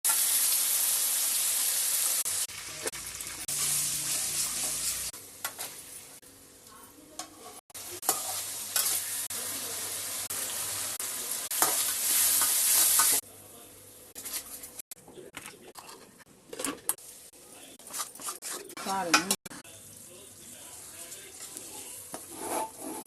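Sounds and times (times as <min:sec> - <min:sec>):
food sizzling in hot oil: 0:00.0 - 0:06.2, 0:07.7 - 0:13.2
spoon scraping a pan: 0:17.8 - 0:19.4, 0:21.4 - 0:23.0.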